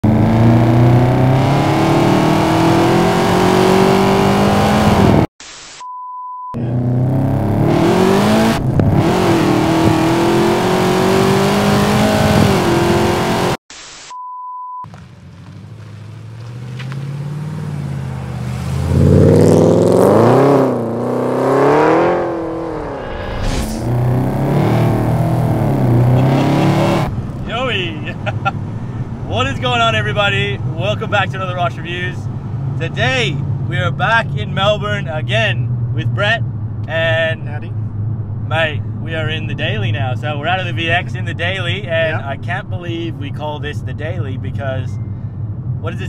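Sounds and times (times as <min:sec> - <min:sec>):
car engine accelerating hard: 0:00.0 - 0:05.3, 0:06.6 - 0:13.6, 0:15.2 - 0:37.2.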